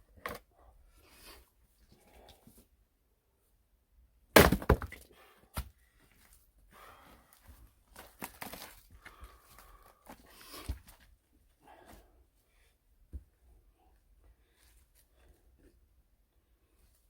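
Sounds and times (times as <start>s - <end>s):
wood cracking and thunking: 4.4s - 5.0s.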